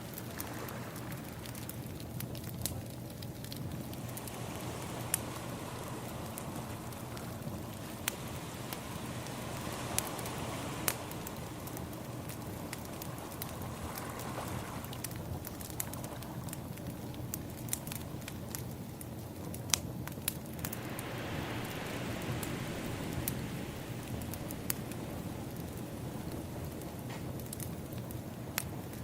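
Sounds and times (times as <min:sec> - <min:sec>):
sea waves: 0:00.0 - 0:01.8, 0:03.8 - 0:15.1, 0:20.5 - 0:27.0
wood fire crackling and popping: 0:00.0 - 0:29.0.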